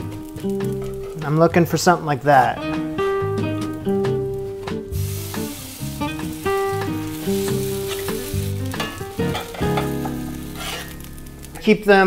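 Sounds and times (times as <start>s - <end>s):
batter sizzling in a skillet: 0.0s - 1.4s, 3.6s - 11.8s
music with plucked notes: 0.0s - 1.5s, 2.3s - 11.7s
metal spatula scraping a pan: 7.3s - 11.1s.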